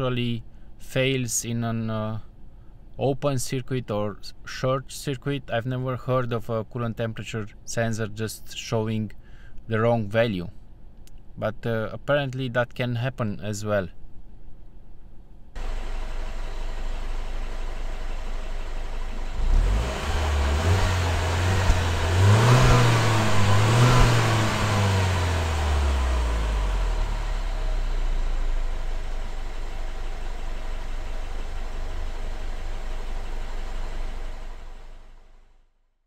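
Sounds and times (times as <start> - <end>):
car engine revving and idling: 15.6 - 35.3.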